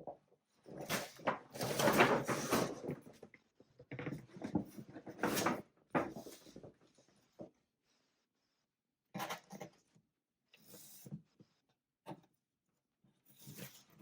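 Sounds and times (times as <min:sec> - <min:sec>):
paper and cardboard rustling: 0:00.9 - 0:02.9.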